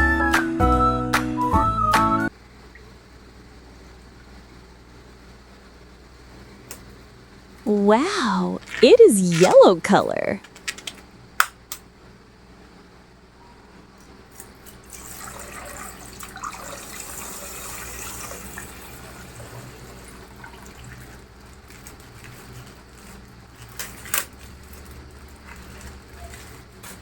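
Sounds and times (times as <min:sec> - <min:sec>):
water pouring and splashing: 0:14.9 - 0:23.1.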